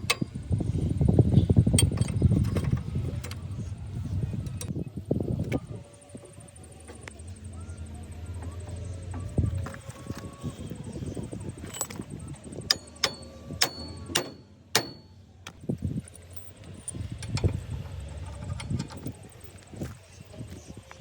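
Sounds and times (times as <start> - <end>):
metal clanks: 0.0 - 3.5, 8.4 - 19.8.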